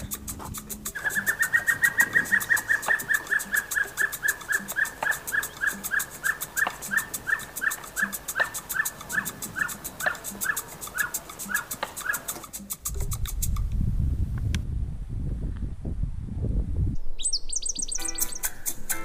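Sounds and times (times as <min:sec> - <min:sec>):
bird whistling short notes: 0:01.0 - 0:12.2, 0:17.2 - 0:18.7.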